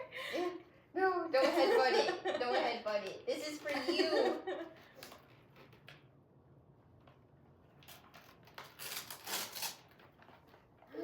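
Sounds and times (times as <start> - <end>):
gift wrapping rustling and crinkling: 7.7 - 11.0.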